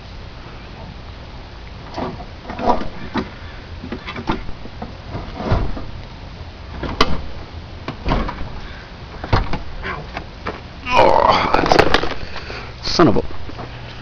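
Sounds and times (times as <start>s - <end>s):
knocks and clunks: 1.9s - 6.0s, 6.7s - 10.6s.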